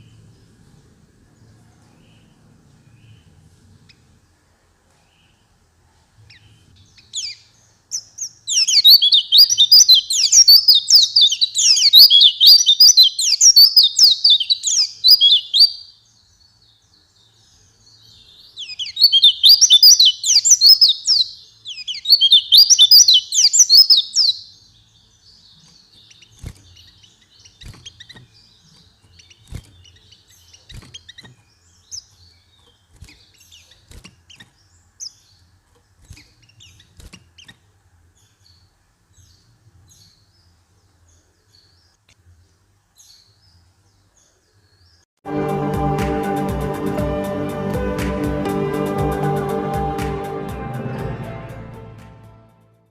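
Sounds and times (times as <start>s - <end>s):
bird singing rapid high notes: 7.0s - 16.0s, 18.1s - 24.6s.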